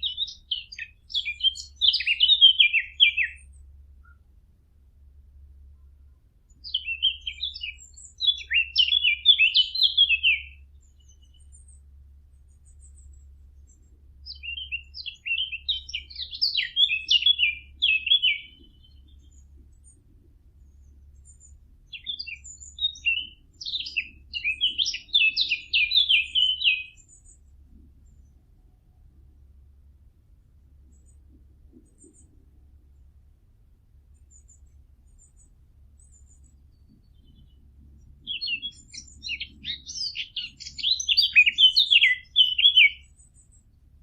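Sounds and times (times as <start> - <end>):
warbler singing: 0.0 - 4.3, 5.7 - 29.1, 34.1 - 44.0.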